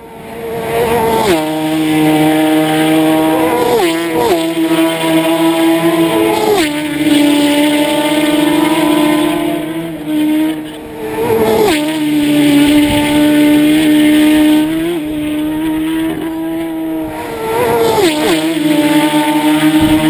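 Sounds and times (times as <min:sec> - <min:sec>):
racing motorcycles passing: 0:00.0 - 0:20.0.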